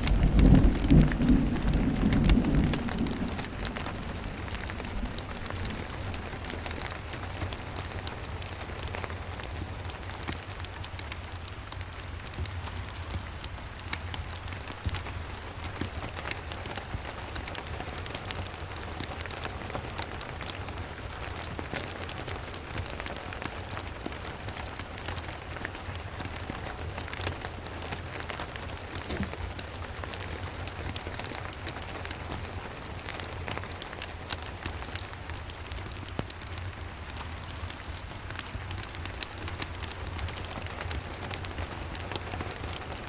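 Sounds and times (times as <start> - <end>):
low rumble: 0.0 - 7.4
fireplace crackle: 0.0 - 13.2, 13.8 - 43.0
rain pattering: 0.0 - 43.0.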